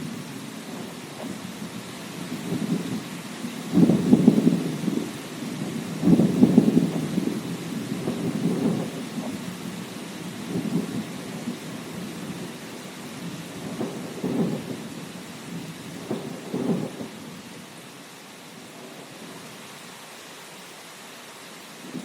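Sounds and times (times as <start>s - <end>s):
rain hissing: 0.0s - 22.0s
low thunder rolling: 2.3s - 12.6s, 13.2s - 17.4s.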